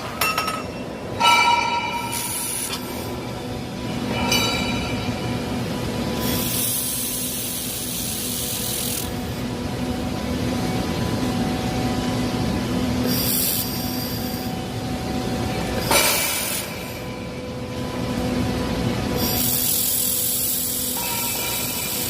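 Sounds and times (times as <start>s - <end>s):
steady machine hum: 0.0s - 22.0s
laser welder hissing: 2.0s - 3.4s, 6.0s - 9.5s, 13.0s - 14.5s, 15.7s - 17.2s, 19.1s - 22.0s.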